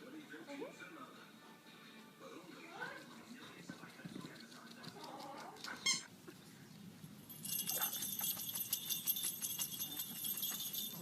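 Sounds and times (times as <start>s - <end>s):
jingle bells shaking: 7.3s - 11.0s.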